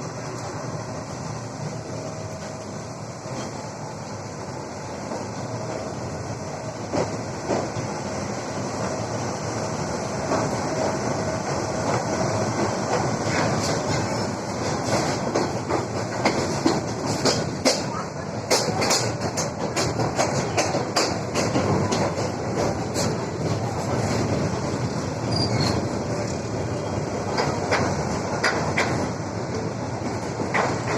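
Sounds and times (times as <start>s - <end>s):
train rumbling: 0.0s - 30.9s
wheels clacking over rail joints: 10.2s - 30.9s.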